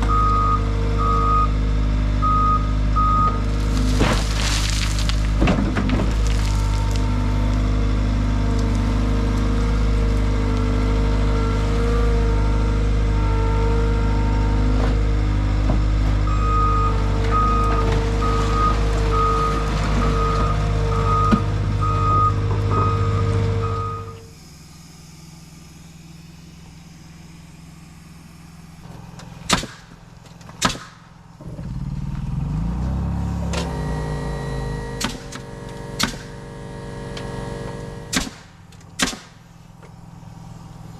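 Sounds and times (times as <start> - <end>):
loader engine running: 0.0 - 40.9
backup alarm beeping: 0.1 - 1.6, 2.2 - 3.4, 16.3 - 24.2, 33.6 - 38.1
motor rising in pitch: 20.6 - 29.4, 31.4 - 38.1.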